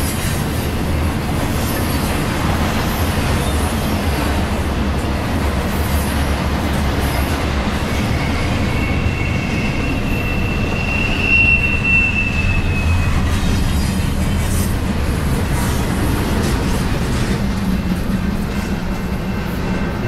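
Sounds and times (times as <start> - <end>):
freight train rumbling past: 0.0 - 20.0
high wheel squeal: 7.0 - 14.8.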